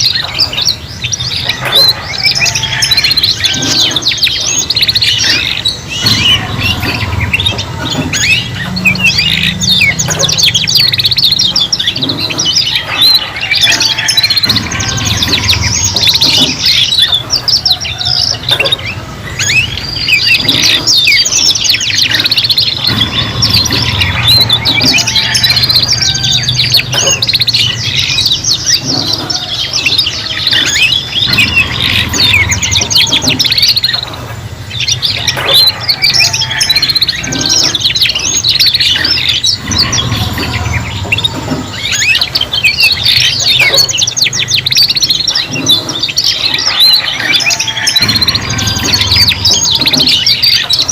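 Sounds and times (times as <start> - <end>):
canaries singing trills: 0.0 - 50.9.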